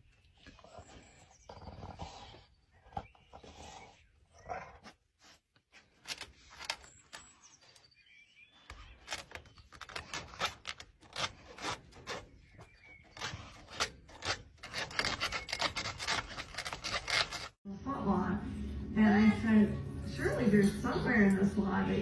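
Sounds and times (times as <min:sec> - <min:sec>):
rough scratching strokes: 0:09.8 - 0:17.6.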